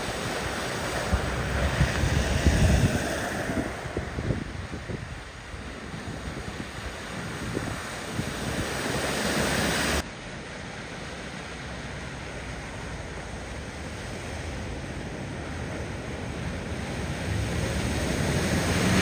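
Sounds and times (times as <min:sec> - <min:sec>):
wind on microphone: 0:00.0 - 0:10.0, 0:15.6 - 0:19.0
rushing floodwater: 0:00.0 - 0:19.0.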